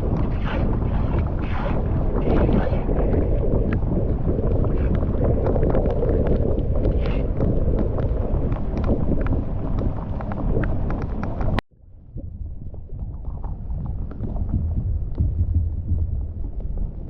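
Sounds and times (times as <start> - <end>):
small splashes and clicks: 0.1 - 11.6.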